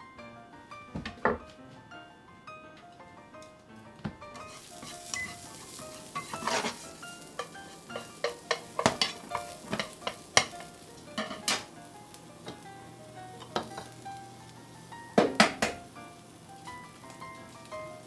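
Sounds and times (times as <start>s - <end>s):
soft background music: 0.0s - 18.0s
food sizzling in a frying pan: 4.3s - 18.0s
utensil scraping a pan: 4.4s - 11.7s.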